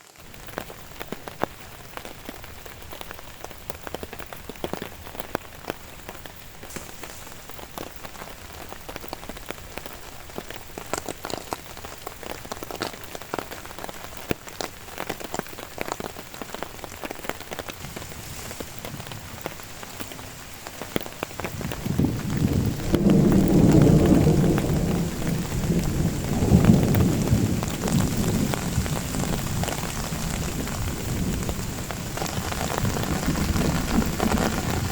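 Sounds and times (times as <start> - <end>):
rain falling: 0.0 - 34.9
thunder rumbling: 17.7 - 34.9.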